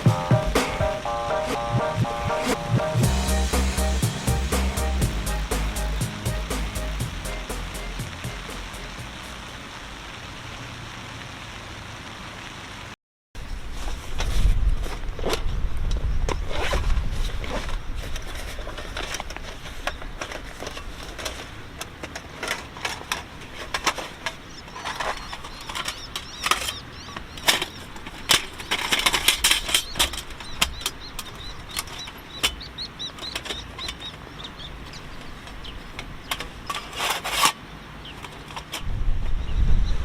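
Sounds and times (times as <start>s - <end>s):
rustling and clicking handling: 14.2s - 32.6s.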